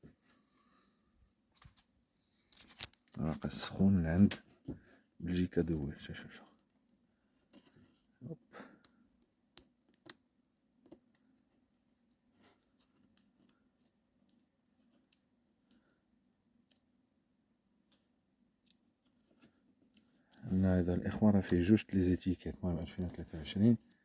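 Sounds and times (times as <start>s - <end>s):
faint small clicks and taps: 8.8s - 16.9s, 17.8s - 20.5s.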